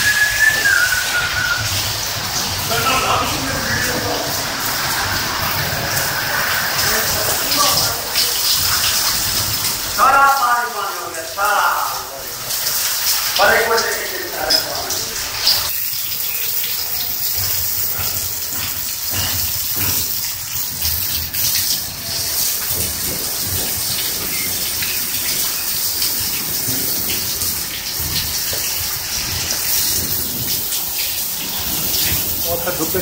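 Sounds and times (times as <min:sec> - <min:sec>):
heavy rain on concrete: 0:00.0 - 0:33.0.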